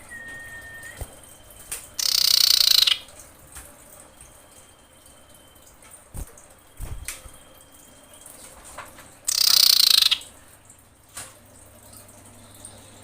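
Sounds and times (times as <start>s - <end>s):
bird harsh rasping call: 2.0s - 3.0s, 9.3s - 10.3s.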